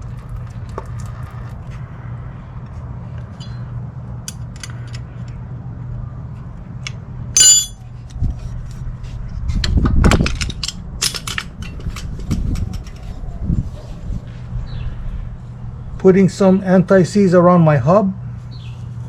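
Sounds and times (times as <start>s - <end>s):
heavy metal clunk: 7.4s - 7.8s
metal tools clinking and knocking: 7.4s - 7.8s
ringing metal clink: 7.4s - 7.8s.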